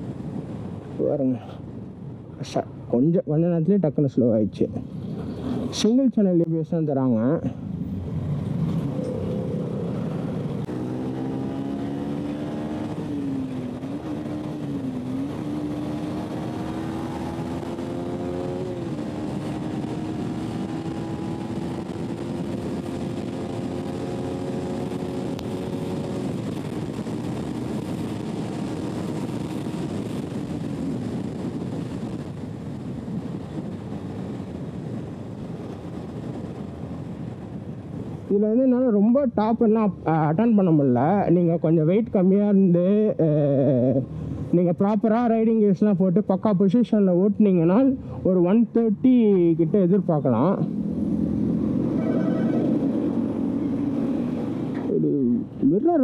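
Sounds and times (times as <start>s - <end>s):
wind rush on microphone: 0.0s - 56.0s
motorcycle engine at high speed: 7.7s - 38.3s, 48.7s - 55.0s.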